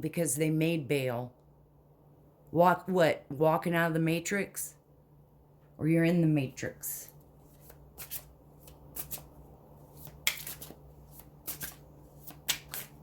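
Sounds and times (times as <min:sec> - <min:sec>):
cards being shuffled: 0:07.2 - 0:13.0.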